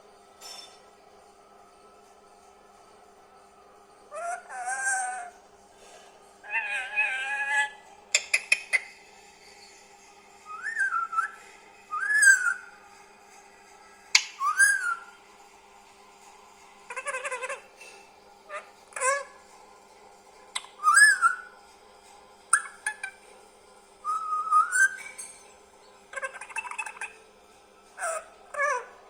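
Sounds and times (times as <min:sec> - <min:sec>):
parakeet chattering calls: 0:04.1 - 0:05.3, 0:06.4 - 0:09.1, 0:16.9 - 0:17.9, 0:18.5 - 0:19.4, 0:20.6 - 0:21.5, 0:22.5 - 0:23.2, 0:24.1 - 0:25.3, 0:26.1 - 0:27.2, 0:28.0 - 0:29.0
parakeet whistles: 0:04.1 - 0:05.4, 0:10.4 - 0:12.9, 0:14.1 - 0:15.2, 0:20.6 - 0:21.6, 0:22.5 - 0:23.2, 0:24.0 - 0:27.2, 0:28.0 - 0:28.9.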